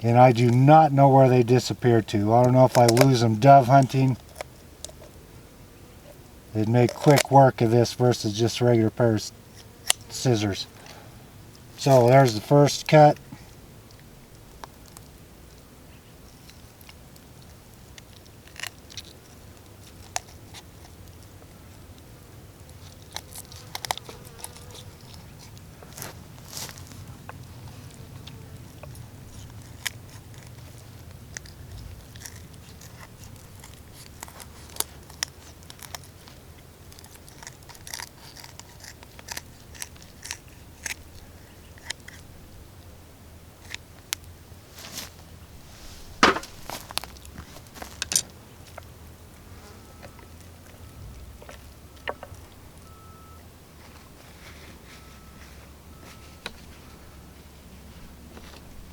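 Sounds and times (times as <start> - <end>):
scissors cutting through bones: 22.9 - 25.6, 28.8 - 36.3, 36.9 - 41.2.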